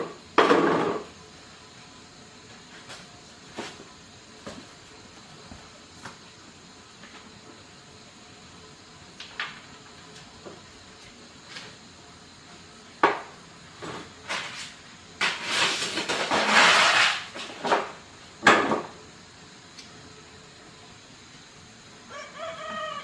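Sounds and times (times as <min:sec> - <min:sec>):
scraping or rustling: 0:13.8 - 0:17.9.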